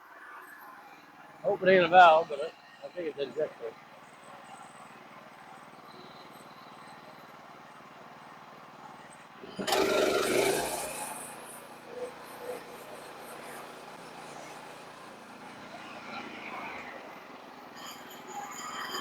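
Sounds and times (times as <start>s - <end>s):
skid steer engine revving: 9.4s - 16.7s.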